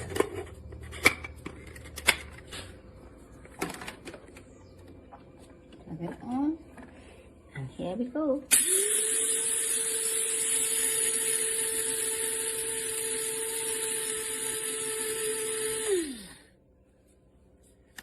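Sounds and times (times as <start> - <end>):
electric grinder grinding seeds: 8.5 - 16.5.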